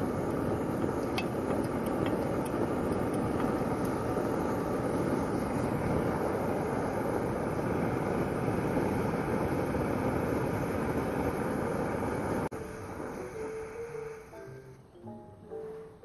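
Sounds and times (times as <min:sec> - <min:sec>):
faint music: 0:12.5 - 0:16.0.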